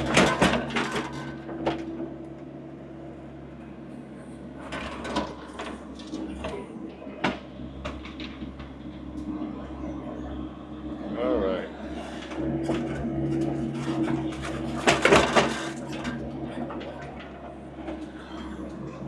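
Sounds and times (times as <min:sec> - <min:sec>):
clunks and knocks: 0:00.0 - 0:02.0, 0:12.6 - 0:18.0
skid steer engine running: 0:00.0 - 0:19.0.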